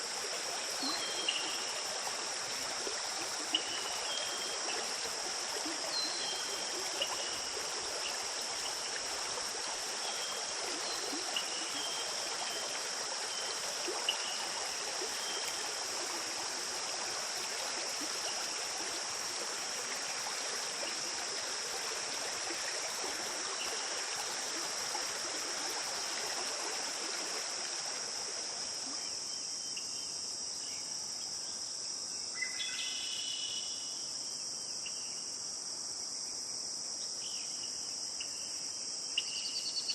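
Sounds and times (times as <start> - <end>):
stream water running: 0.0 - 31.2
crickets chirping: 0.0 - 39.9.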